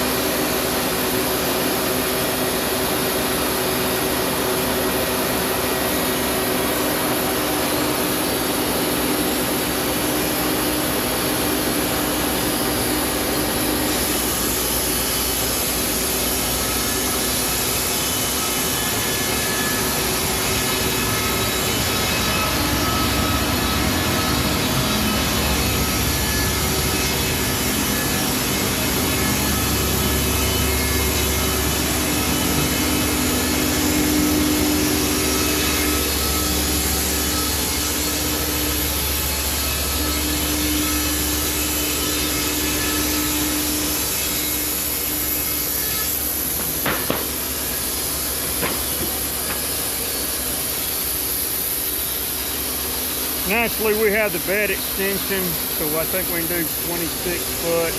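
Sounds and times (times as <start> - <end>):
band saw cutting log: 10.2 - 50.4, 53.4 - 57.9.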